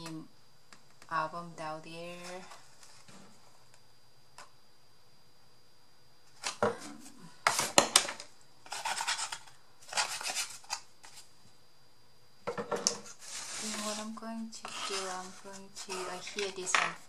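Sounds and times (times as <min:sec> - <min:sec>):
cardboard rasping and rubbing: 0:08.7 - 0:10.6, 0:13.0 - 0:16.4.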